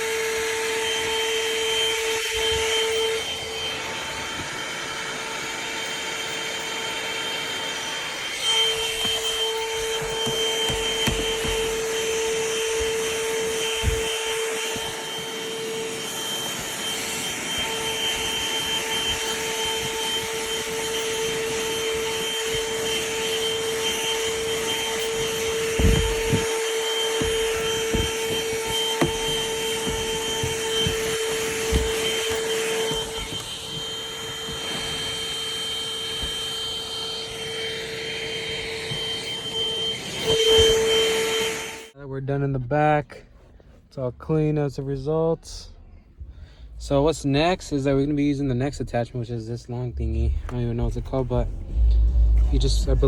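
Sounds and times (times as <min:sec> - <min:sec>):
handheld vacuum running: 0:00.0 - 0:42.0
nozzle knocking against surfaces: 0:08.8 - 0:15.0, 0:24.6 - 0:35.2.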